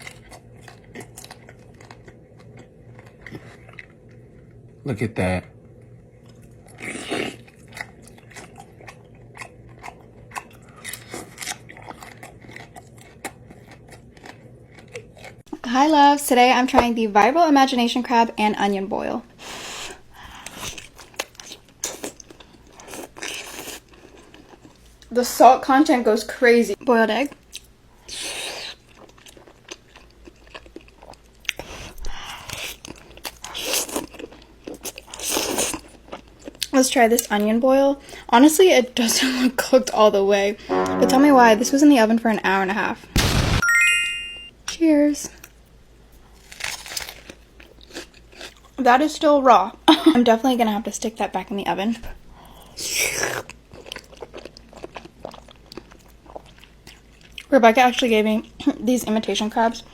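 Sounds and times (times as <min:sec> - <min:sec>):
soft chewing: 0:00.0 - 0:04.8, 0:05.8 - 0:15.6, 0:19.6 - 0:25.1, 0:27.2 - 0:37.4, 0:46.2 - 0:48.8, 0:52.4 - 0:58.8
person biting and chewing food: 0:06.4 - 0:15.4, 0:46.4 - 0:48.6.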